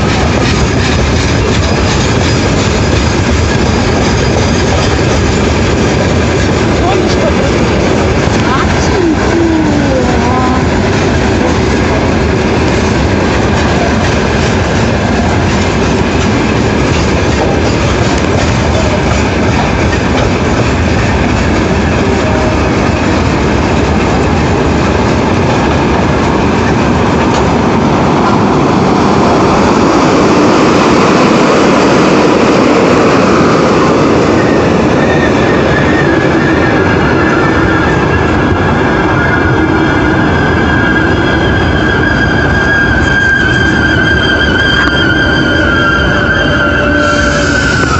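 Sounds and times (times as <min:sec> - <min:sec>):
train wheels clattering: 0:00.0 - 0:47.9
wheel and brake squeal: 0:34.4 - 0:47.9.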